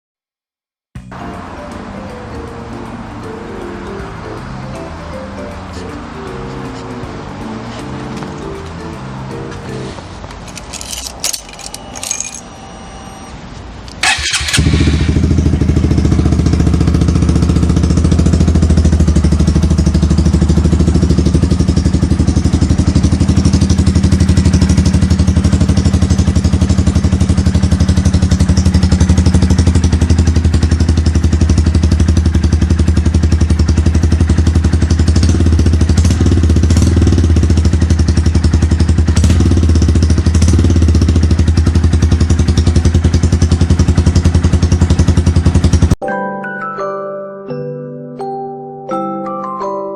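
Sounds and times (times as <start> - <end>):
motorcycle engine starting and idling: 10.3 - 46.0.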